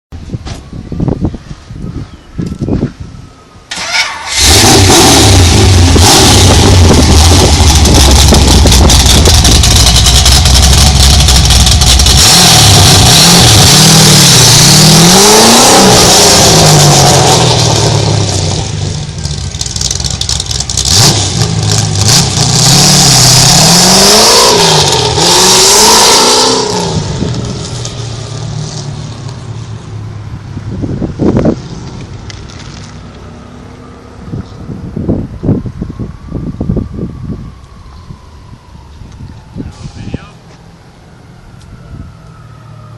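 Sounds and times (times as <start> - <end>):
car engine starting: 3.7 - 30.2
car engine idling and revving: 3.7 - 39.7.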